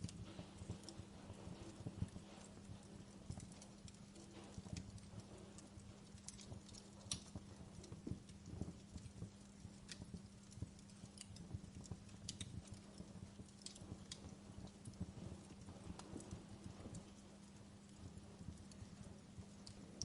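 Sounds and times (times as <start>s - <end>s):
faint low hum: 0.0s - 20.0s
wood fire crackling: 0.0s - 20.0s.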